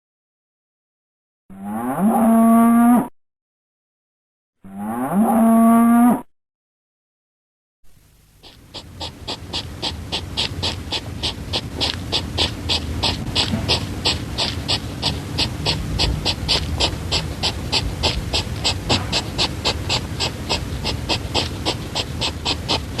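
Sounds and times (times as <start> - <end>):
hedgehog snuffling: 7.9 - 23.0.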